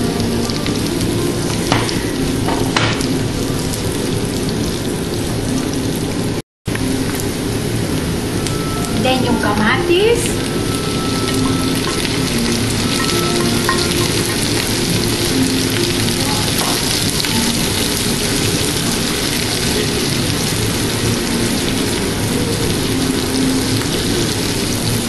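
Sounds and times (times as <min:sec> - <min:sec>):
onion and tomato sizzling in a pan: 0:00.0 - 0:25.0.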